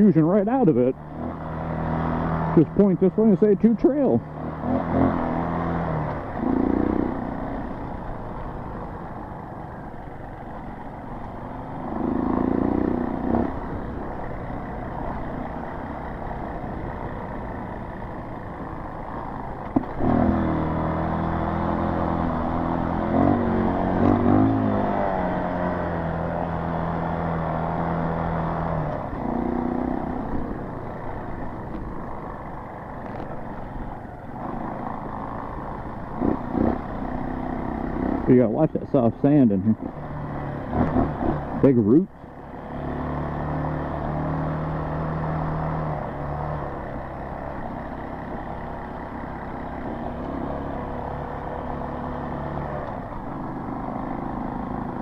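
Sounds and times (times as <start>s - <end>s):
dirt bike engine revving: 0.0s - 8.2s, 11.8s - 16.7s, 19.8s - 33.6s, 34.4s - 55.0s.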